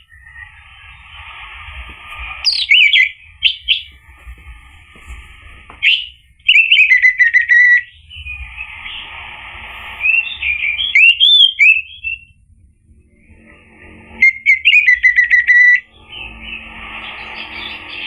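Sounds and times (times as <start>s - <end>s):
thrush singing whistled notes: 0.0s - 4.2s, 5.8s - 12.4s, 13.4s - 18.0s
steady hiss: 0.0s - 6.5s, 8.1s - 11.2s.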